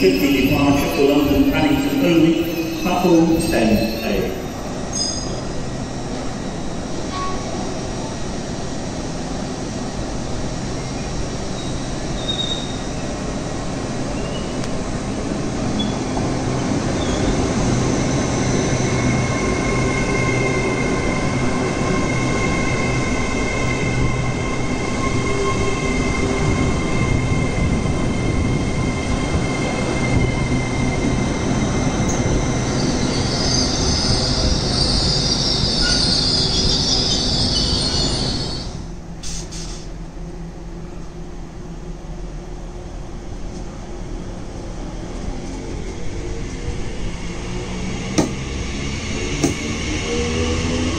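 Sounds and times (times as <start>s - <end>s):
steady high-pitched tones: 0.0s - 7.4s
train rumble: 0.0s - 50.9s.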